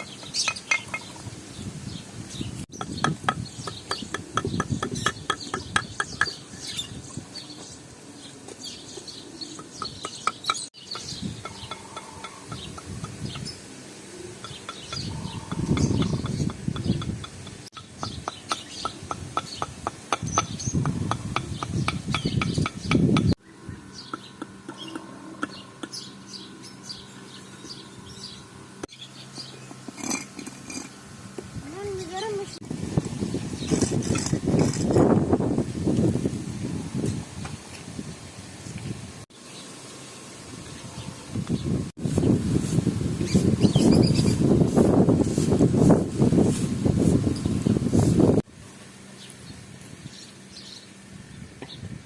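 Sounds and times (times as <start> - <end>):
small birds chirping: 0.0 - 32.6, 33.2 - 35.0, 38.6 - 48.4, 49.1 - 51.9
chickens clucking: 24.0 - 26.2.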